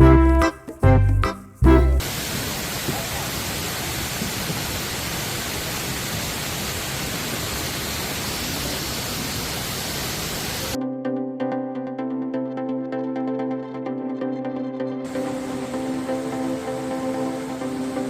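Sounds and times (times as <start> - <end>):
electronic music: 0.0 - 2.0
falling water rushing: 2.0 - 10.8, 15.1 - 18.0.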